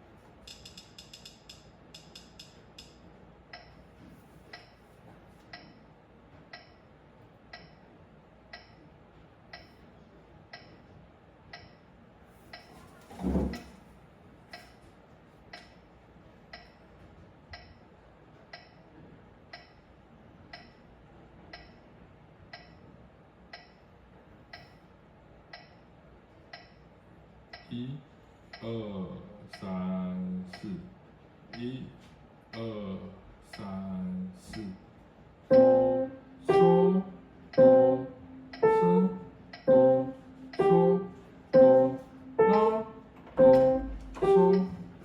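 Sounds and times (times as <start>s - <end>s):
metronome ticking: 0.5s - 2.9s, 3.5s - 3.8s, 6.5s - 6.8s, 7.5s - 7.8s, 8.5s - 8.8s, 10.5s - 10.8s, 11.5s - 11.8s, 16.5s - 16.8s, 18.5s - 18.8s, 19.5s - 19.8s, 20.5s - 20.7s, 21.5s - 21.8s, 22.5s - 22.8s, 23.5s - 23.8s, 26.5s - 26.8s, 35.5s - 45.0s.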